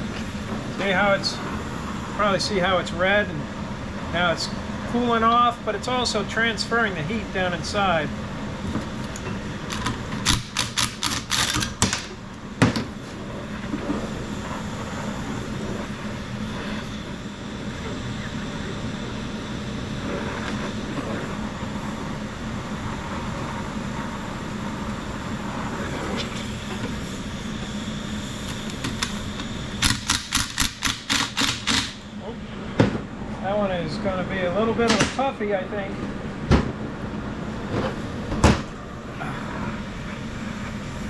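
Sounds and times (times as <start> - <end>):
steady hiss and low hum: 0.0 - 41.0
ratchet wrench clicking: 10.2 - 11.9, 29.8 - 32.0.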